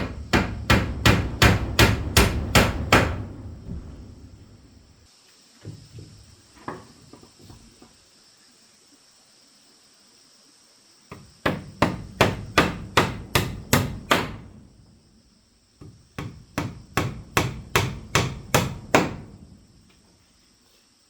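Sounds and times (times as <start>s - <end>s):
hammer strikes: 0.0s - 3.9s, 11.4s - 14.4s, 16.2s - 19.3s.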